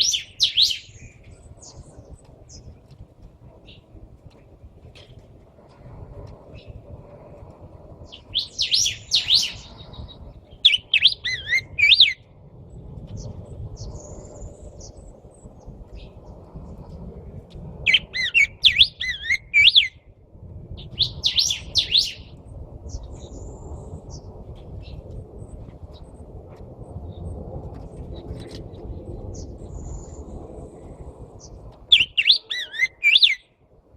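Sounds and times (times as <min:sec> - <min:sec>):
songbird warbling: 0:00.0 - 0:01.2, 0:08.1 - 0:12.2, 0:17.9 - 0:19.9, 0:20.8 - 0:22.3, 0:31.9 - 0:33.4.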